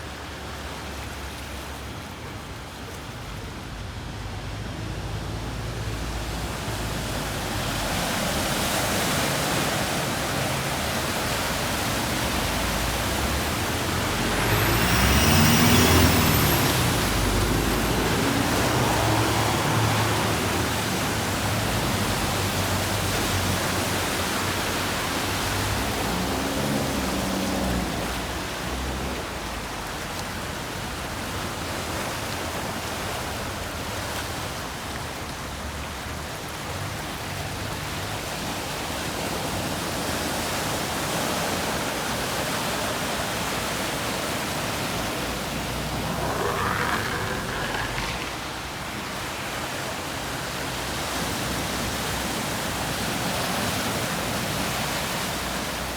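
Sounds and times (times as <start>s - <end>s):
car driving past: 4.5s - 31.4s, 43.4s - 49.6s.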